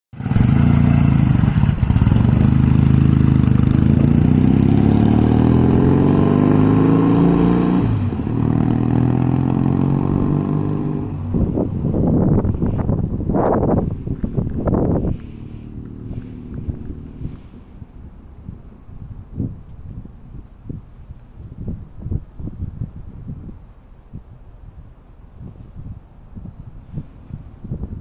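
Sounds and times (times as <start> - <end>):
motorcycle engine accelerating: 0.1 - 20.8.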